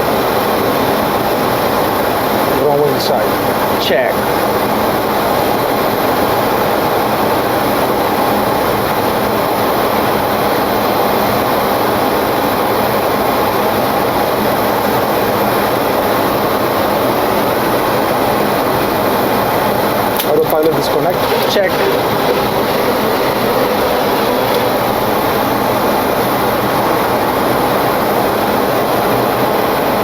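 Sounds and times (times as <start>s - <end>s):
jet running noise: 0.0s - 30.0s
air rushing past cockpit: 19.8s - 28.0s.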